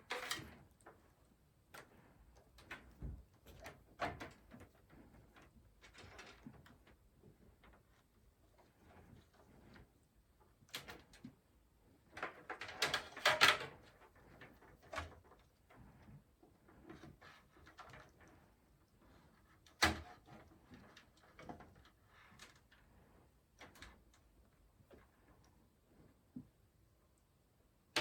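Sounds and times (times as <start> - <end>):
clicks and rattles of pc parts: 12.2 - 13.8.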